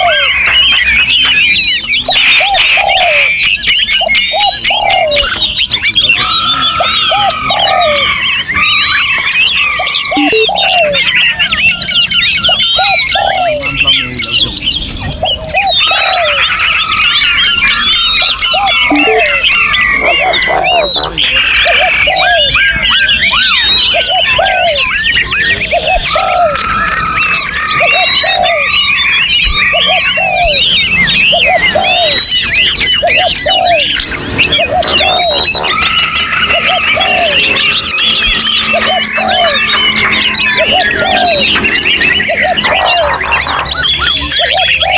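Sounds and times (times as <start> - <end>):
songbirds chorus: 0.0 - 44.9
lower arching bird call: 6.0 - 13.8, 15.2 - 44.9
low cooing phrase: 6.1 - 11.1, 12.8 - 14.1, 15.3 - 22.6, 23.9 - 24.9, 25.6 - 32.3, 33.0 - 44.9.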